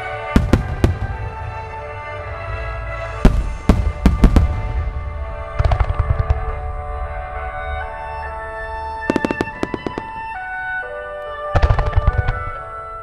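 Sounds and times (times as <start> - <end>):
music: 0.0 - 13.0
firework shells bursting: 0.4 - 1.9, 3.2 - 6.6, 9.1 - 10.6.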